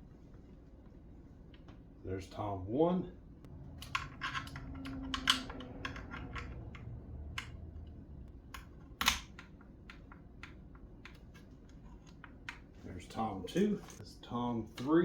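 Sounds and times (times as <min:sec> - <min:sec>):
cable plugs clicking into jacks: 0:03.7 - 0:07.8.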